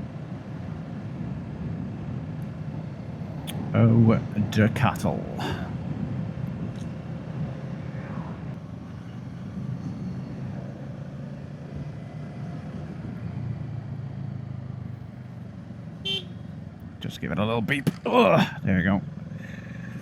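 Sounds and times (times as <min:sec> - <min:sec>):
wind rush on microphone: 0:05.3 - 0:08.6.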